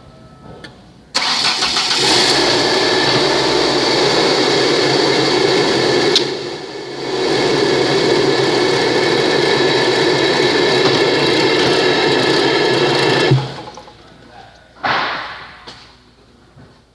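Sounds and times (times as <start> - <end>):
car engine running: 1.2 - 14.0.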